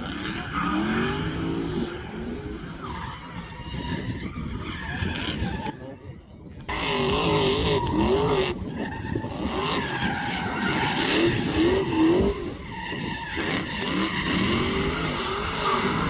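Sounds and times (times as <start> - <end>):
car engine revving: 0.0 - 3.8, 6.6 - 16.0
tyres squealing: 6.9 - 16.0.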